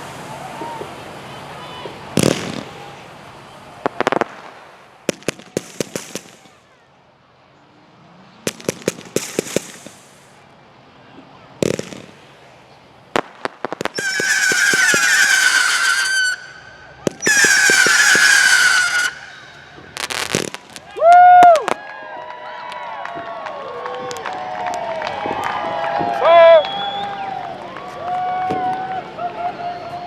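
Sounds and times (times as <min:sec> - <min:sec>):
fireworks popping and banging: 0:01.8 - 0:03.0, 0:03.8 - 0:06.7, 0:08.4 - 0:10.4, 0:11.1 - 0:12.5, 0:13.1 - 0:21.9
shrill wavering firework whistles: 0:13.8 - 0:21.8.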